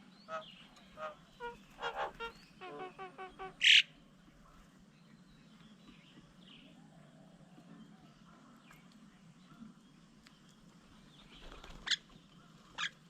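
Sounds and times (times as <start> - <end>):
birds piping: 0.0 - 6.8
loud harsh bird call: 0.2 - 4.0.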